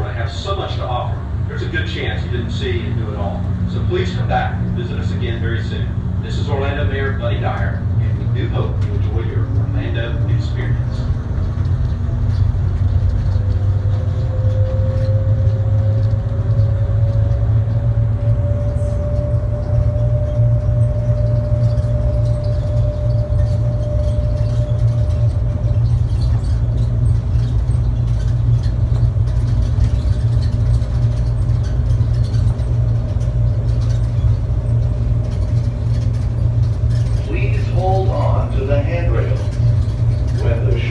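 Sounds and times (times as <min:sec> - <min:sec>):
train low rumble: 0:00.0 - 0:40.9
motor whine rising: 0:13.4 - 0:40.9.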